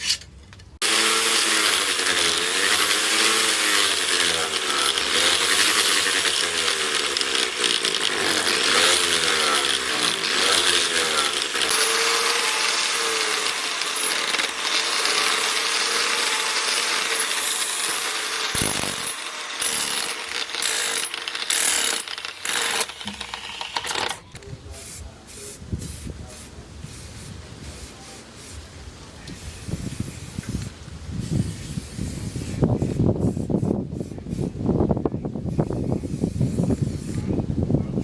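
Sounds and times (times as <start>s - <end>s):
power tool grinding: 0.8s - 24.4s.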